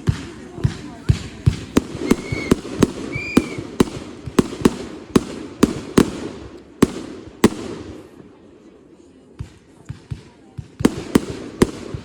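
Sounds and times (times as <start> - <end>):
fireworks bangs: 0.0 - 8.4, 9.4 - 12.0
high fireworks whistles: 0.7 - 6.1.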